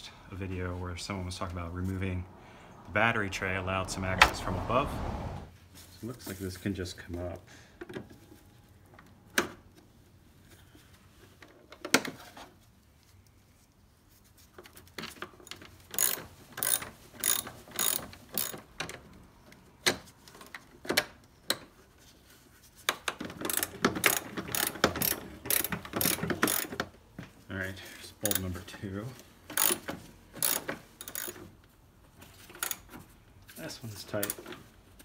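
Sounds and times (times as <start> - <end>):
ratchet wrench clicking: 15.9 - 18.6, 23.5 - 26.8, 29.5 - 31.4.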